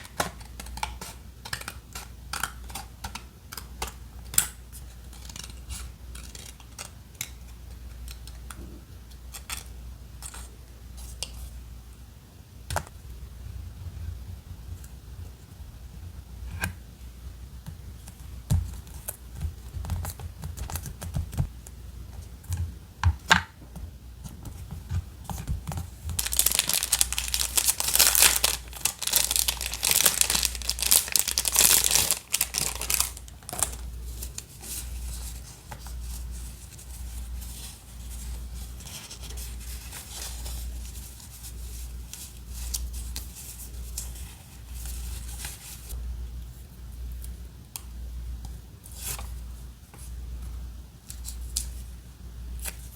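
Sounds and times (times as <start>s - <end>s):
paper rubbing and rustling: 25.3s - 46.0s
paper crinkling and tearing: 26.1s - 41.5s.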